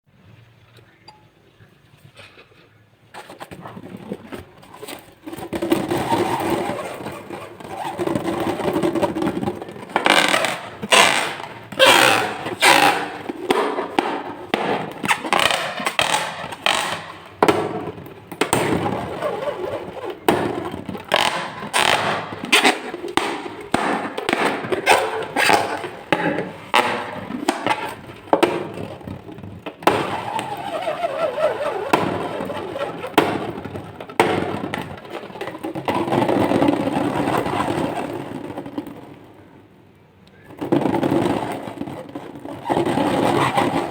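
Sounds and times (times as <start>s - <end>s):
squeaky rubber glides: 3.1s - 39.4s, 40.4s - 43.9s
falling squeak: 4.6s - 17.4s, 18.6s - 28.0s, 29.9s - 35.4s.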